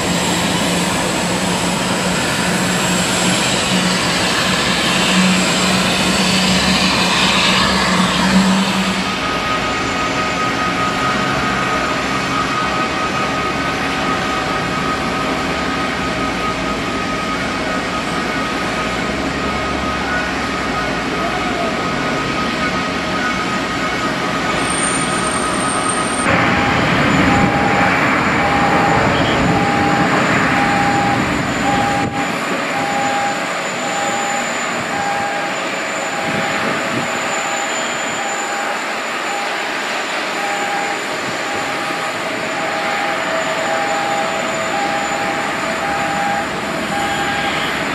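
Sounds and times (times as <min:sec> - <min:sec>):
jet engine noise: 0:00.0 - 0:47.9
short beep: 0:24.8 - 0:39.7, 0:40.3 - 0:47.8.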